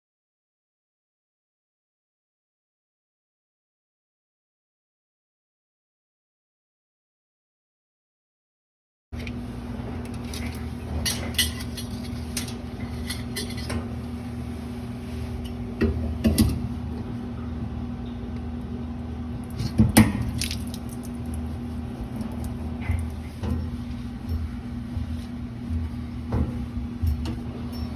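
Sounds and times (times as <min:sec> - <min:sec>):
steady background hum: 0:09.2 - 0:27.9
metal tools clinking: 0:10.3 - 0:13.8.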